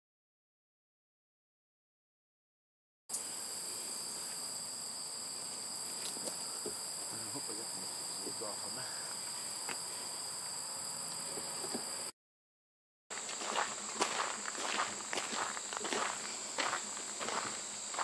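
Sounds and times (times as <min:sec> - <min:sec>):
crickets trilling: 0:03.1 - 0:12.1, 0:13.1 - 0:18.0.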